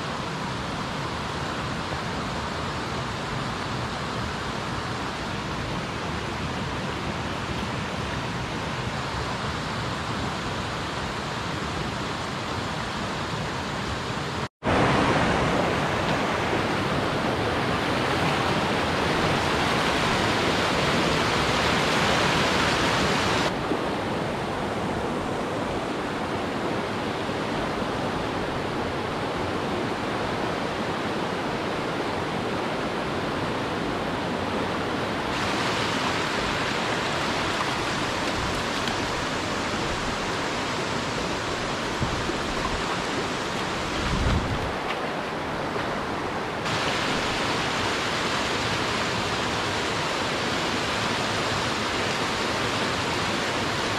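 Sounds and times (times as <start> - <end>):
mountain stream rushing: 0.0 - 53.9.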